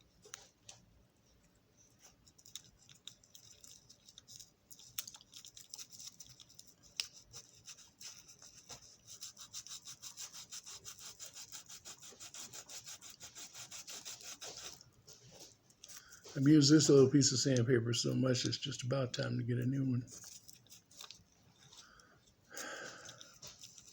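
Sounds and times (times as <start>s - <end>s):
sandpaper rubbing on metal wheels: 7.3s - 14.8s.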